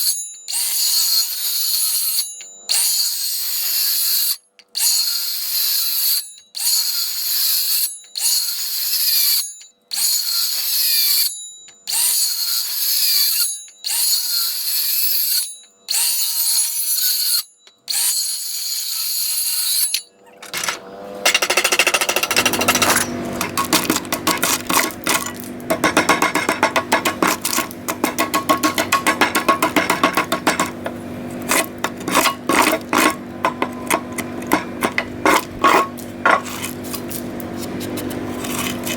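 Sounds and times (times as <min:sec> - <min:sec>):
rapid hammering clatter: 0:20.6 - 0:38.9
low hum: 0:22.2 - 0:37.4.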